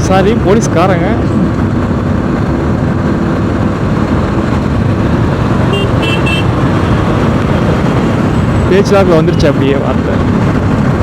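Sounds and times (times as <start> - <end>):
wind noise on microphone: 0.0 - 11.0
motorcycle engine running: 1.5 - 8.8
vehicle horn beeps: 5.7 - 6.6.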